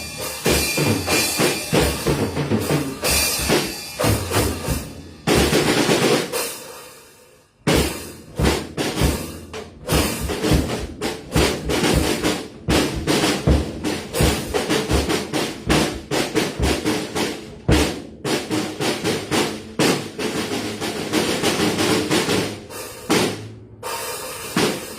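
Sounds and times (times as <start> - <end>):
snare drum rolls: 0.0 - 6.3, 7.7 - 23.5, 24.5 - 24.9
bass drum kicks: 7.7 - 15.1.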